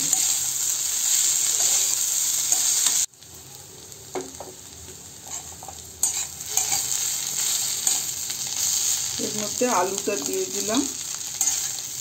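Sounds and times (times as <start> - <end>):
metal spatula scraping: 0.0 - 3.1, 5.2 - 9.2, 11.3 - 12.0
vegetables sizzling in a wok: 0.0 - 12.0.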